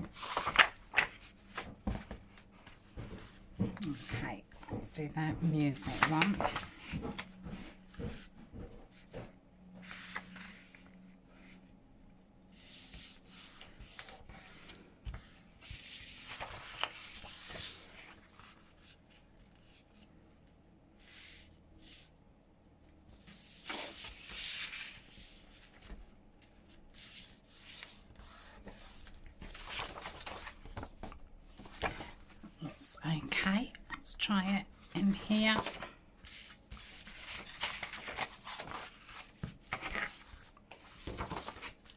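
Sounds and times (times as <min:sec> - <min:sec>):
paper pages shuffling: 0:00.0 - 0:11.5, 0:12.6 - 0:20.1, 0:23.2 - 0:32.8, 0:34.7 - 0:41.9.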